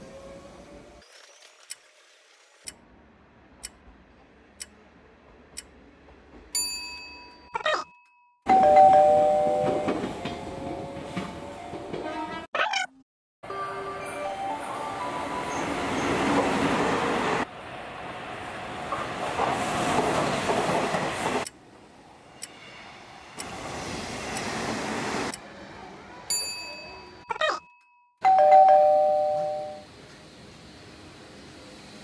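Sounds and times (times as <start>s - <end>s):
trains rumbling: 0.0s - 1.0s, 2.9s - 6.8s, 8.5s - 12.5s, 13.5s - 26.5s, 28.3s - 32.0s
two-note ding-dong chime: 28.2s - 29.8s.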